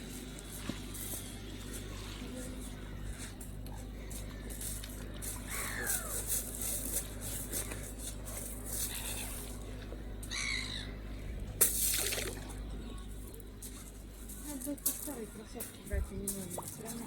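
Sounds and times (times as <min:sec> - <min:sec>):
birds calling harshly: 0:02.4 - 0:13.5.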